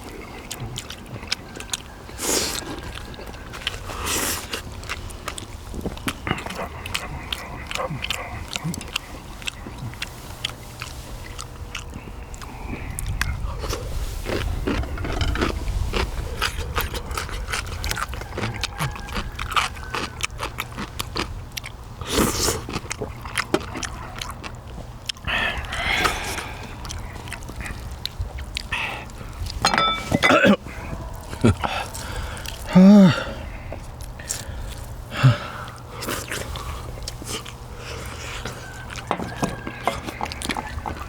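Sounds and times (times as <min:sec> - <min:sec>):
chewing meat off bones: 0:00.0 - 0:41.0.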